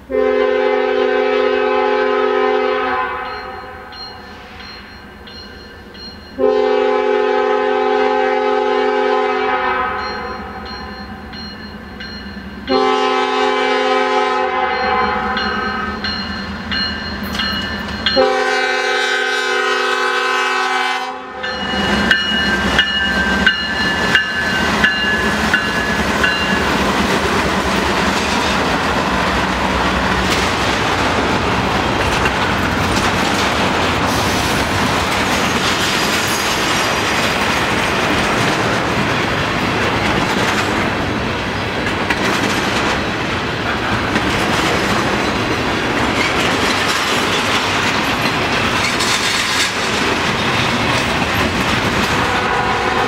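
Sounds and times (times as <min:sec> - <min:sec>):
train horn blast: 0:00.0 - 0:03.8, 0:06.4 - 0:10.4, 0:12.7 - 0:16.0, 0:18.1 - 0:22.0, 0:52.1 - 0:53.0
freight cars rumbling and clattering: 0:21.8 - 0:52.4.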